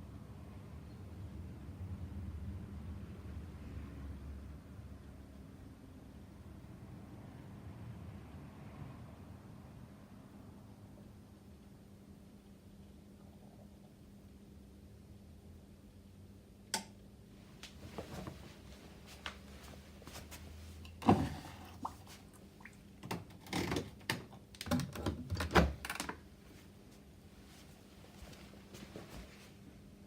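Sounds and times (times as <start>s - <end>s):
washing machine hum: 17.2s - 30.0s.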